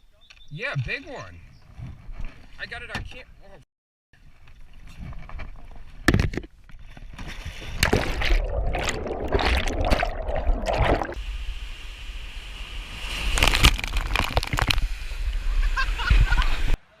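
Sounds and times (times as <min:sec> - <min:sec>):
water splashing and sloshing: 0:06.7 - 0:11.2, 0:13.3 - 0:15.0.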